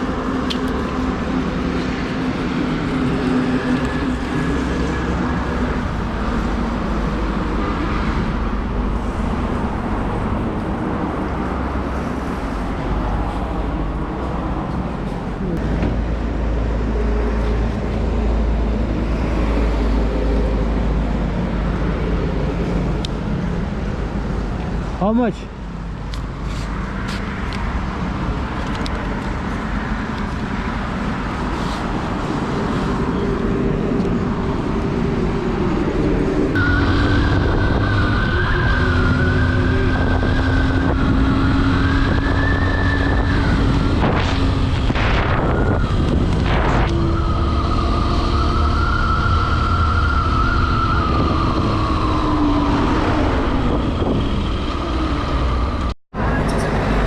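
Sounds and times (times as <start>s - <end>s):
wind rushing: 30.5s - 56.0s.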